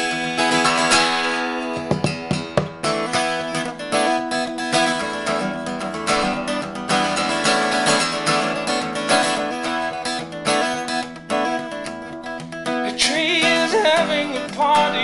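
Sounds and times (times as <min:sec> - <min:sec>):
person singing: 0:00.0 - 0:02.0, 0:12.8 - 0:15.0
acoustic guitar strumming: 0:00.0 - 0:15.0.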